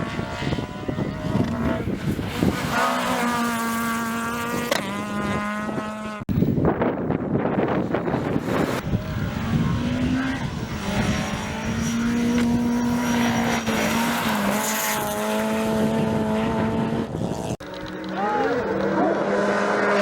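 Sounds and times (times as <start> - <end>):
rally car engine running hard: 7.8 - 20.0.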